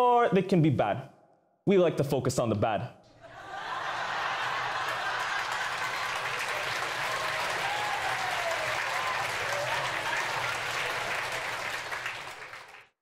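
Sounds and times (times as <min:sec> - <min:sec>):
people cheering: 0:03.2 - 0:12.9
audience applause: 0:03.4 - 0:13.0.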